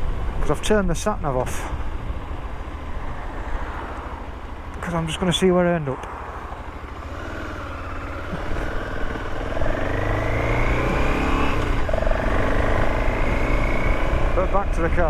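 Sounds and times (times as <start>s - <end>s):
motorcycle engine accelerating: 6.4s - 15.0s.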